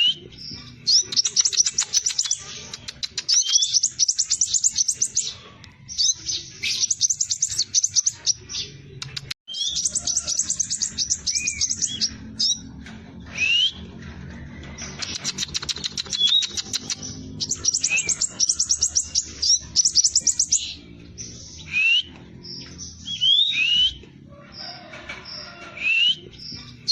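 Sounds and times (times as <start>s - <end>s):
bird trilling: 6.0s - 12.7s, 14.8s - 26.9s
rising whistled bird notes: 21.6s - 22.2s.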